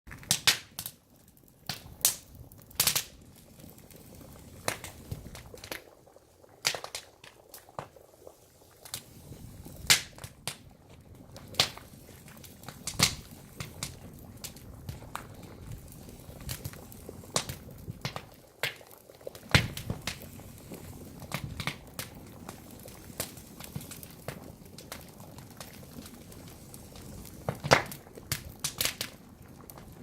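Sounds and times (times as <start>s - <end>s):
firewood crackling and popping: 0.1s - 30.0s
fire hissing: 0.8s - 30.0s.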